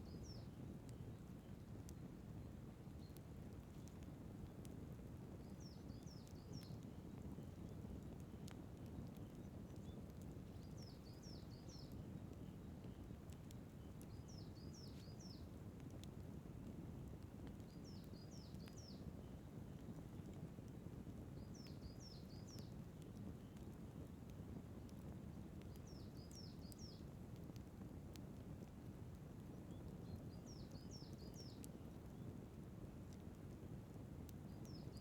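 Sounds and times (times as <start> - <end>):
outdoor fire crackling: 0.0 - 35.0.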